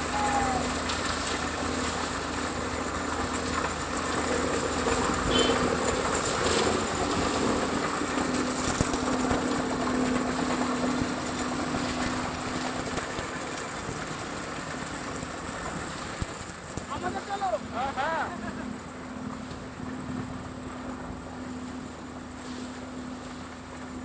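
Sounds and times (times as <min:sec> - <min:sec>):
construction machinery engine droning: 0:00.0 - 0:24.0.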